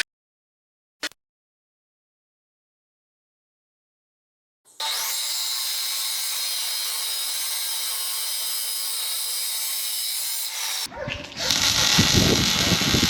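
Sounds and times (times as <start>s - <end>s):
power tool rasping on metal: 4.7s - 13.0s.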